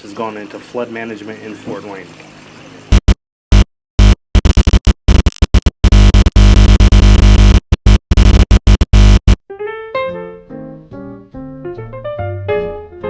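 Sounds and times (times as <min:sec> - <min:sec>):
distorted electronic noise bursts: 0:02.9 - 0:09.4
piano melody: 0:09.5 - 0:13.0.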